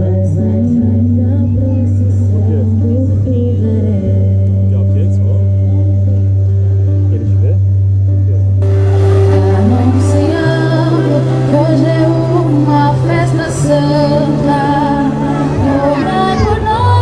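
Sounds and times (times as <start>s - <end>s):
woman singing: 0.0s - 4.7s, 8.9s - 17.0s
held low bass notes: 0.0s - 17.0s.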